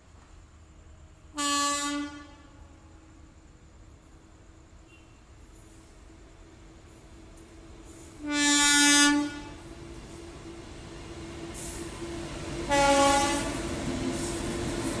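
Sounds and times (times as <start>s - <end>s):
train rumbling: 0.0s - 15.0s
train horn blasts: 1.3s - 3.4s, 8.2s - 9.7s, 12.7s - 13.7s.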